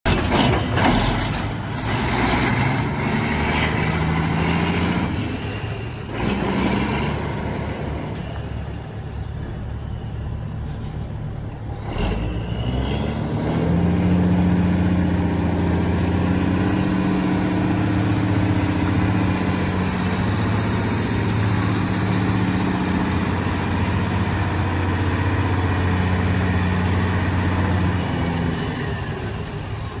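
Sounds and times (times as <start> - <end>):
diesel truck engine running: 0.0 - 30.0.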